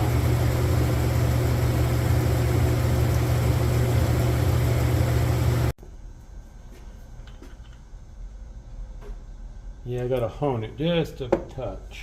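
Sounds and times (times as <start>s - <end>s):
hone machine humming and whirring: 0.0s - 11.0s.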